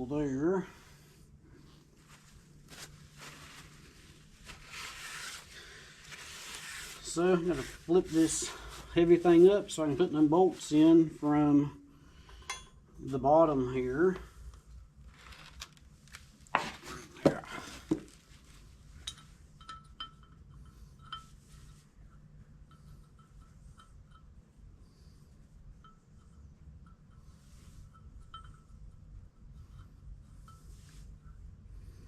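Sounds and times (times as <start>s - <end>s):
light metallic clinks: 12.3s - 12.8s, 18.9s - 24.4s, 25.8s - 31.4s.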